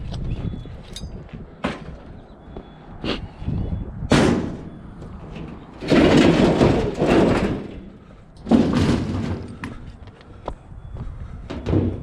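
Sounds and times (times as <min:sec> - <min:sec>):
junk clattering crash: 0:04.1 - 0:09.8, 0:11.5 - 0:12.0
scrap metal banging: 0:04.1 - 0:10.0.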